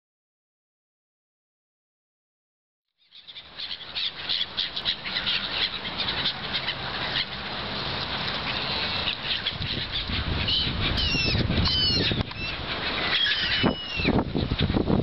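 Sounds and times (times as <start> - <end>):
strong wind buffeting microphone: 9.4 - 15.0.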